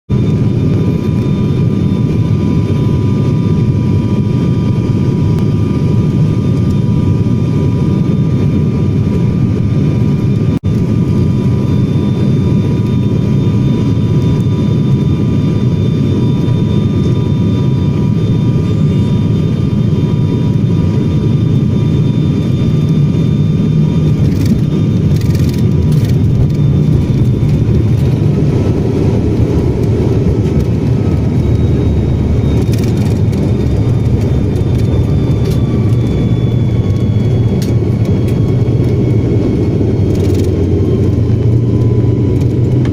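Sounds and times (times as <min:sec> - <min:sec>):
jet engines rumbling: 0:00.1 - 0:42.9
faint whining tones: 0:11.5 - 0:42.9.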